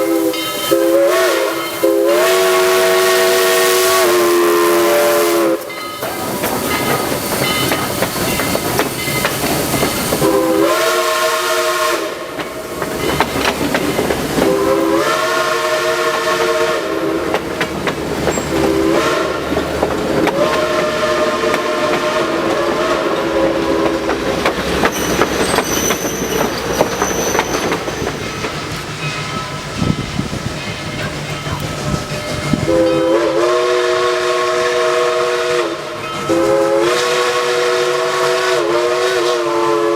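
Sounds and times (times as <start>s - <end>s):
steam locomotive chime whistle: 0.0s - 13.5s, 14.4s - 17.4s, 18.2s - 19.6s, 20.2s - 39.9s
train rumble and rail clatter: 0.0s - 39.9s.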